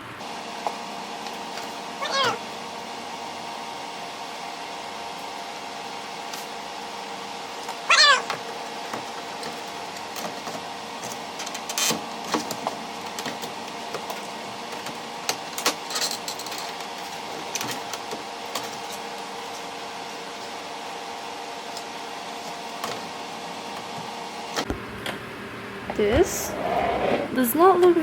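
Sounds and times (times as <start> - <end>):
cat meowing: 2.0 - 2.4, 7.9 - 8.4.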